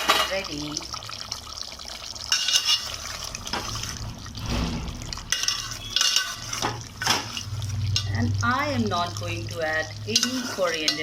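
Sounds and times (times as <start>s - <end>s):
spoon stirring curry in pot: 2.3s - 4.2s, 5.3s - 8.2s, 9.7s - 11.0s.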